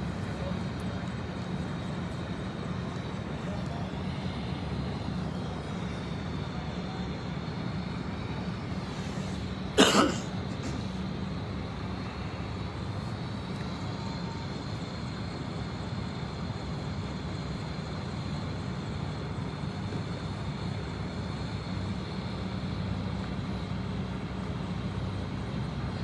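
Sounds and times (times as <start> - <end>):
helicopter engine drone: 0.0 - 26.0
turbine whine: 0.0 - 26.0.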